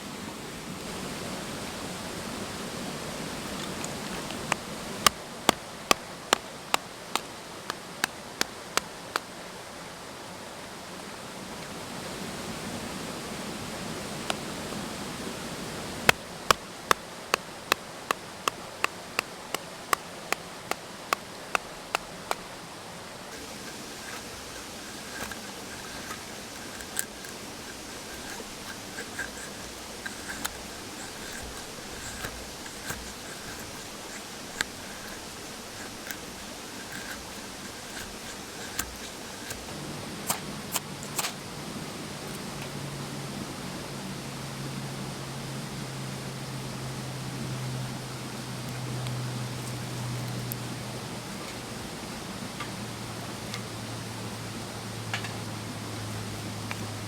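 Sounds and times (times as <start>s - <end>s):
stream babbling: 0.0s - 42.5s
sharp evenly spaced knocks: 16.1s - 22.4s, 23.3s - 39.7s.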